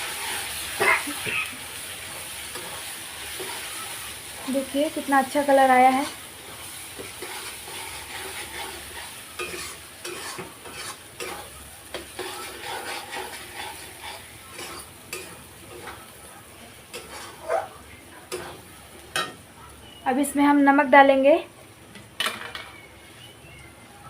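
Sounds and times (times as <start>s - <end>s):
spoon scraping a pan: 0.0s - 16.2s, 16.9s - 19.4s
food sizzling in oil: 0.0s - 24.0s.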